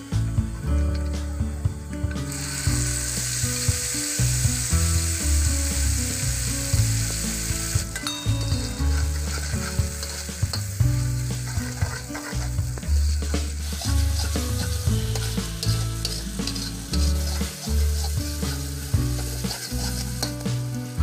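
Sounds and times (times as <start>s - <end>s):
metal spatula scraping wok: 2.1s - 21.0s
paste sizzling in hot oil: 2.1s - 21.0s.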